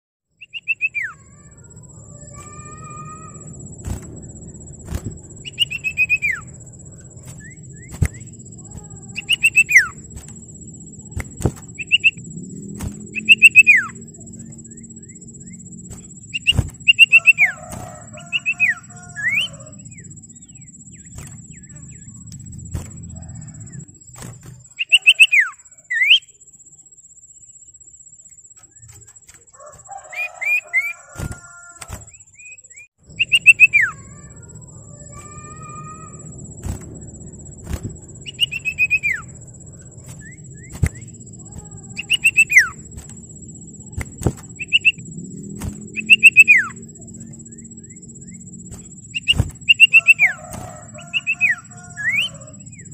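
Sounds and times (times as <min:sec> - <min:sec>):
bird whistled calls: 0:00.4 - 0:01.5, 0:04.8 - 0:10.1, 0:11.0 - 0:22.2, 0:24.7 - 0:26.3, 0:29.9 - 0:36.8, 0:37.8 - 0:42.9, 0:43.9 - 0:45.1, 0:45.9 - 0:52.9
faint high whine: 0:00.4 - 0:52.9
low rumble: 0:01.6 - 0:24.6, 0:33.0 - 0:52.9.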